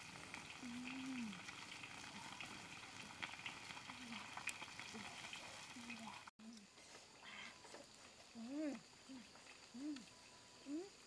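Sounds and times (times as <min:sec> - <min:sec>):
food sizzling in a wok: 0:00.0 - 0:06.3
wood fire crackling: 0:00.0 - 0:10.2
low falling animal call: 0:00.5 - 0:03.2, 0:08.4 - 0:11.0.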